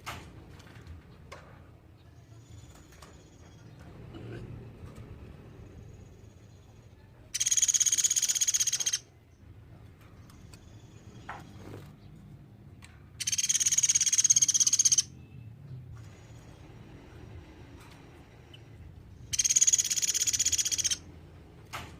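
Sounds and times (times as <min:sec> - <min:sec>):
bird calling in fast trills: 0:07.3 - 0:09.2, 0:13.2 - 0:15.1, 0:19.2 - 0:21.1.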